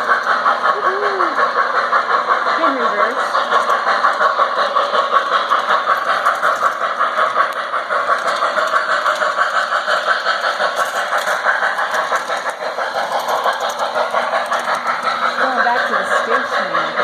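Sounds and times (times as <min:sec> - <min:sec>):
model train rhythmic clatter: 0:00.0 - 0:17.0.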